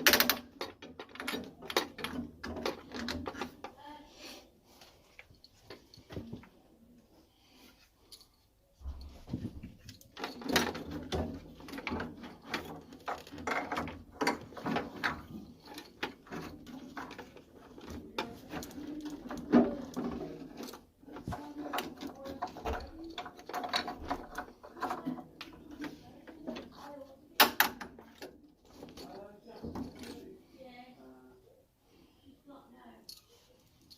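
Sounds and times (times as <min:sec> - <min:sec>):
clicks and rattles of tools: 0:00.0 - 0:03.8, 0:08.9 - 0:30.3.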